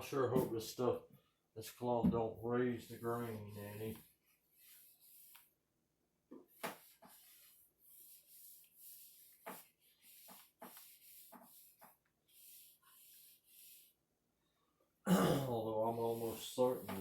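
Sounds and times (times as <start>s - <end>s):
damp cloth wiping wood: 2.7s - 5.5s, 6.5s - 14.0s, 15.8s - 17.0s.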